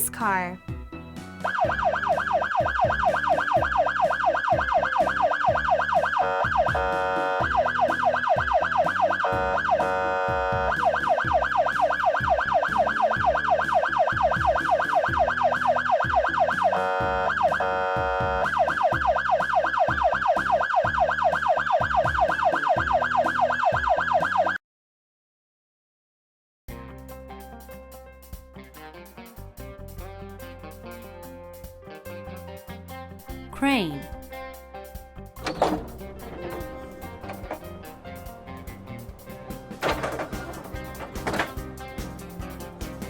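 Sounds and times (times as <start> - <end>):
police siren yelping: 1.5 - 24.6.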